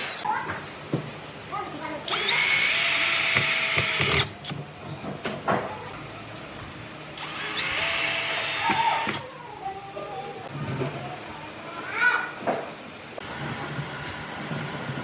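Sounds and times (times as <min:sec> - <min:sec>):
power drill whine: 0:02.1 - 0:04.3, 0:07.2 - 0:09.2.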